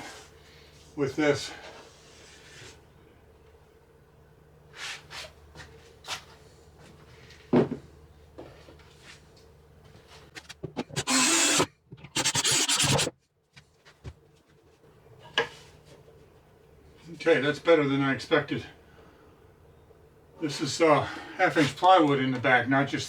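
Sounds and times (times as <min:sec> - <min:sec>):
power driver driving screws: 0:10.8 - 0:13.1.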